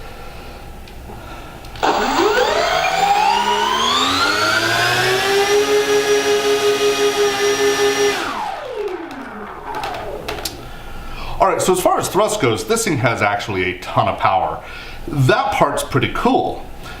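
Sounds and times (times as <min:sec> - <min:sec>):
electric motors and propellers whining: 0:01.8 - 0:10.8.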